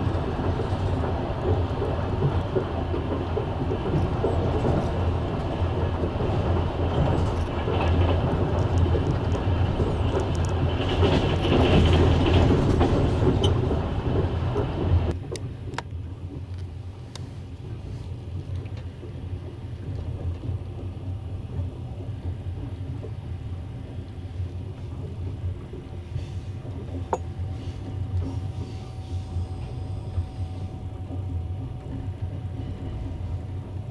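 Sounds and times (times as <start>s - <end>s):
train wheels rumbling on rails: 0.0s - 33.9s.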